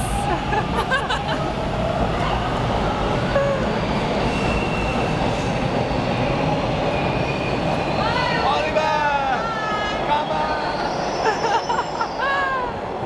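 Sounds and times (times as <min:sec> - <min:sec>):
subway train rumbling: 0:00.0 - 0:13.0
wheels squealing: 0:03.5 - 0:06.2.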